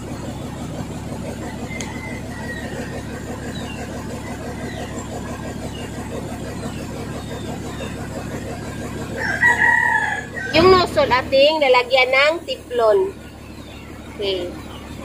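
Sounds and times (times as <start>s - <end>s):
long level bird call: 0.0s - 10.6s, 11.8s - 15.0s
steady low hum: 0.0s - 15.0s.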